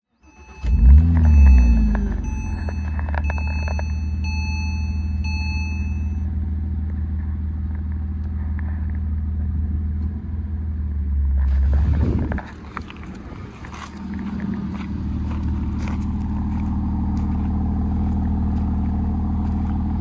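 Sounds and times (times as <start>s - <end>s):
high beep: 0.2s - 6.3s
car engine idling: 0.2s - 20.0s.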